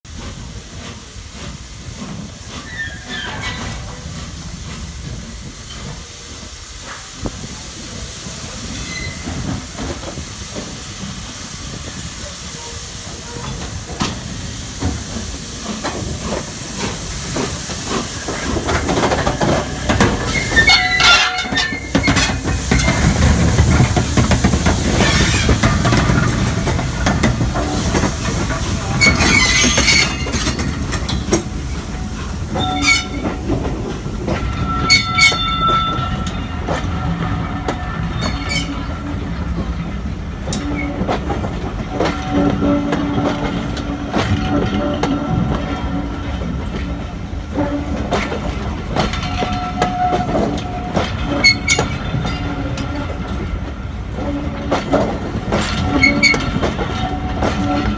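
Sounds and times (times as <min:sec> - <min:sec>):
steam hiss: 0:00.1 - 0:57.9
train wheels clattering on rails: 0:00.1 - 0:57.9
high-pitched squeals: 0:19.4 - 0:23.4.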